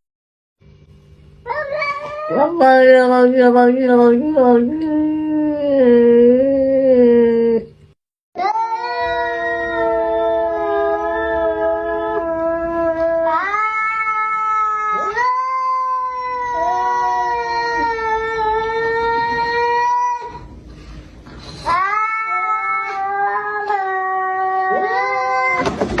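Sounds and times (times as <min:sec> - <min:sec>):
cat yowling: 0:01.5 - 0:02.5, 0:08.4 - 0:18.5, 0:21.7 - 0:25.8.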